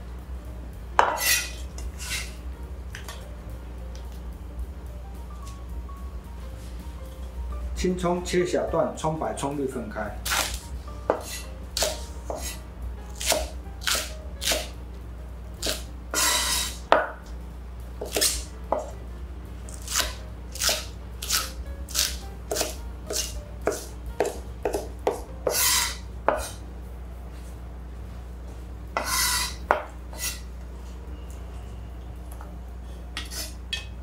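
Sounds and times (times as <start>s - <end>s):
cleaver chopping on wooden board: 10.3s - 12.6s, 13.2s - 14.7s, 18.0s - 18.9s, 19.8s - 26.5s.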